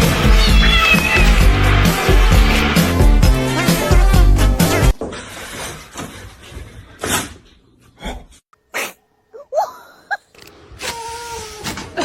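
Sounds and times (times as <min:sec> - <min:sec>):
rising squeaks: 0:00.0 - 0:04.9
sneezes: 0:08.7 - 0:10.2, 0:10.8 - 0:12.0.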